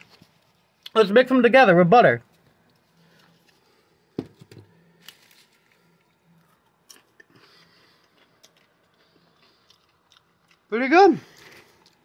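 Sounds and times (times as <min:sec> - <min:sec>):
popcorn being chewed: 0:04.6 - 0:12.0.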